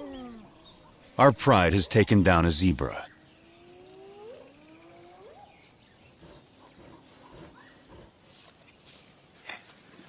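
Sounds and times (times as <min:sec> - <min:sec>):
faint high chirp: 0:03.0 - 0:09.6.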